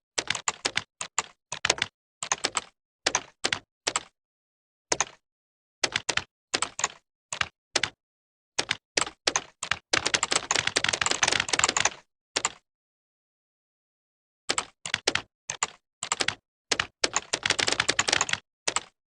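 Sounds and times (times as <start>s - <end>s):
computer keyboard typing: 0.2s - 4.1s, 4.9s - 5.2s, 5.8s - 8.0s, 8.6s - 12.6s, 14.5s - 19.0s.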